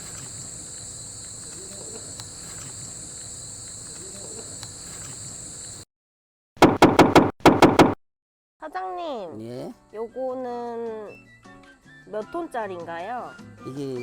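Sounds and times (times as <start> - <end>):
crickets chirping: 0.0 - 5.8
loud knocking: 6.6 - 8.0.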